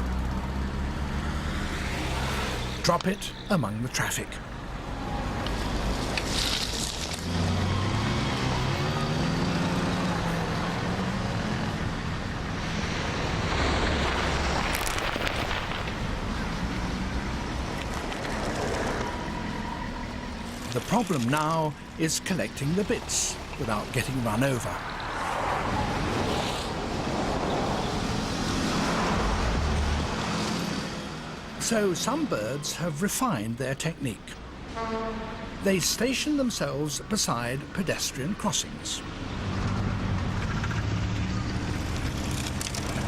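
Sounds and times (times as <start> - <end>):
cars driving past: 0.0 - 43.0
sharp crackle: 5.5 - 7.5, 13.5 - 16.4.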